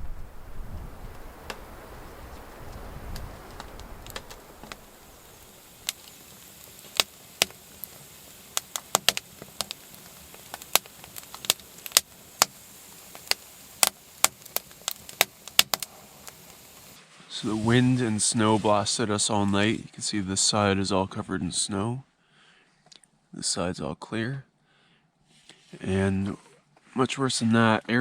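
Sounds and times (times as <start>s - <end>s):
wood stove crackling: 0.0s - 19.6s
faint steady background: 0.0s - 28.0s.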